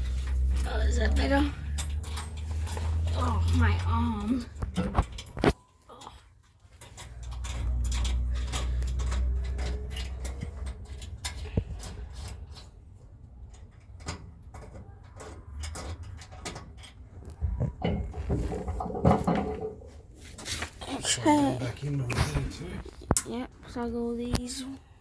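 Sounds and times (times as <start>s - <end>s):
clicks and knocks of tools: 0.0s - 3.6s, 4.4s - 20.7s.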